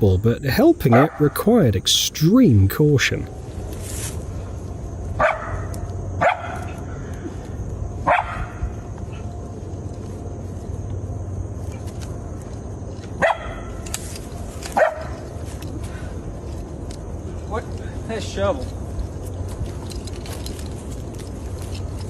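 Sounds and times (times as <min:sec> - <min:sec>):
coyote barking: 0:00.0 - 0:03.2, 0:05.2 - 0:07.1, 0:08.0 - 0:08.8, 0:13.2 - 0:13.9, 0:14.7 - 0:15.3.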